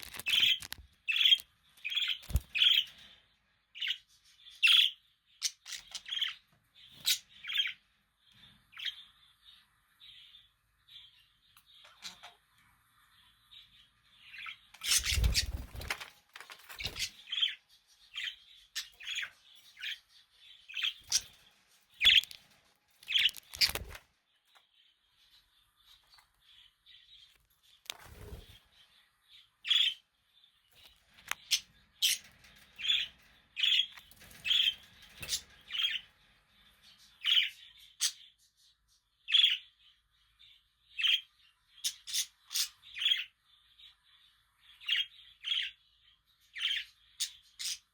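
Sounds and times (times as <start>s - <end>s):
budgerigars chirping: 3.8s - 7.8s, 14.2s - 15.7s, 16.8s - 22.4s, 29.6s - 30.1s, 31.2s - 36.1s, 37.2s - 38.3s, 39.3s - 39.7s, 41.0s - 43.4s, 46.6s - 47.9s.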